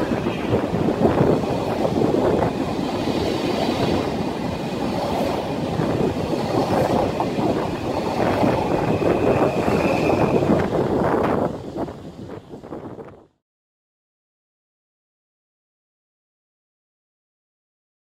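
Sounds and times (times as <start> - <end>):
train wheels rumbling on rail: 0.0 - 13.3.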